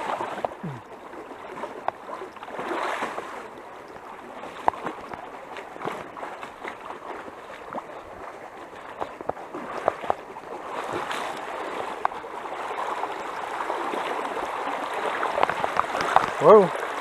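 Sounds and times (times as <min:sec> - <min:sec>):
people wading splashes: 0:00.0 - 0:17.0
water rushing over rocks: 0:00.0 - 0:17.0.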